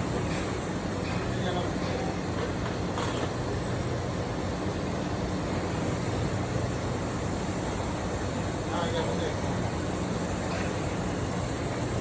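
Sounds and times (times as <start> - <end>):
machinery hum and hiss: 0.0 - 12.0.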